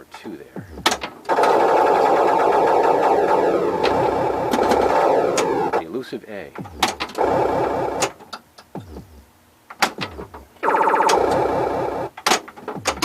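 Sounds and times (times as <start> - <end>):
pinball electronic sound effects: 0.7 - 5.8, 6.6 - 8.2, 10.6 - 12.1
pinball mechanism clicks and knocks: 3.8 - 5.7, 9.7 - 13.0.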